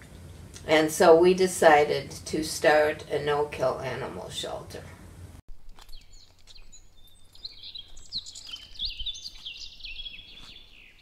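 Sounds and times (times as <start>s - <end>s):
songbirds chirping: 5.7s - 11.0s.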